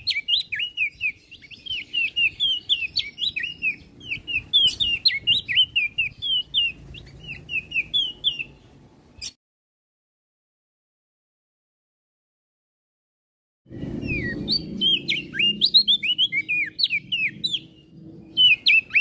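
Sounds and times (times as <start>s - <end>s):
songbird chirping: 0.0s - 9.4s, 13.7s - 19.0s.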